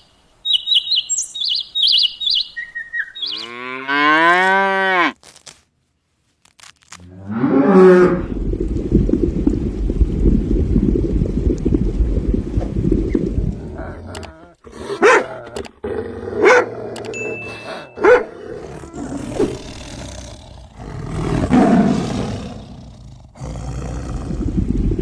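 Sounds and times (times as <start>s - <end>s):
large animal roaring: 13.5s - 17.1s, 18.3s - 25.0s.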